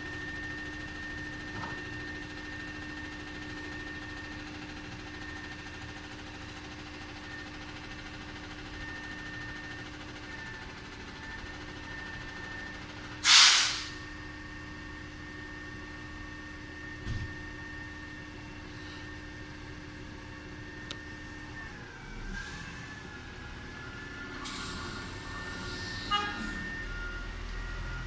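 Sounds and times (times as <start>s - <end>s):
compressed air hiss: 13.2s - 14.0s.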